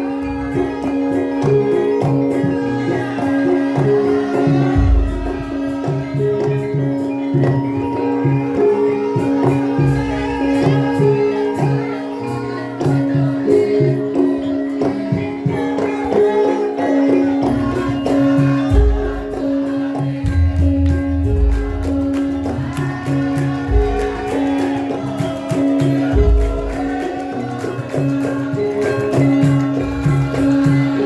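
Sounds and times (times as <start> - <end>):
jingling percussion: 0.0 - 31.0
metallic pitched notes: 0.0 - 31.0.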